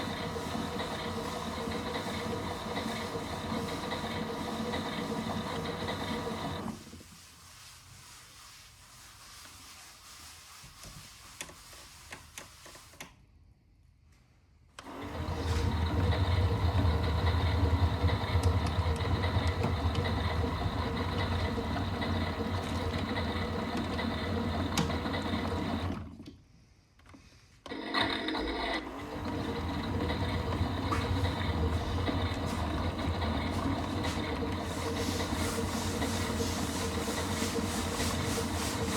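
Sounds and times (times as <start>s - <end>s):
washing machine motor humming: 0.0s - 6.8s, 14.8s - 26.2s, 27.7s - 38.9s.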